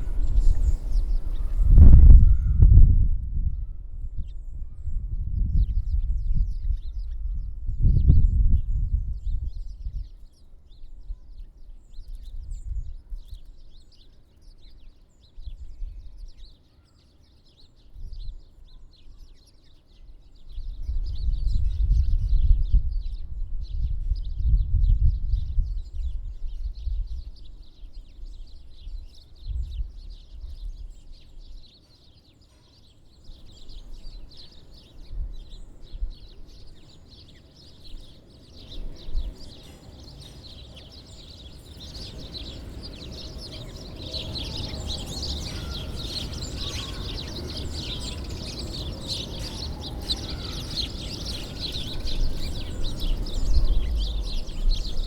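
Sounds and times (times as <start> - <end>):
small birds chirping: 0.0 - 2.9, 3.5 - 55.0
low rumble: 0.0 - 6.9.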